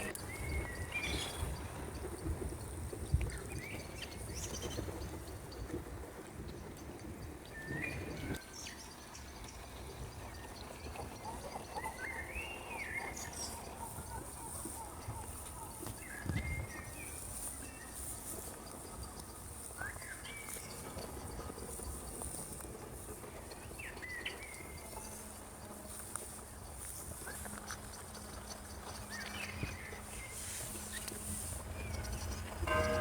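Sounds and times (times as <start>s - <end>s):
bird chirps: 31.8s - 33.0s.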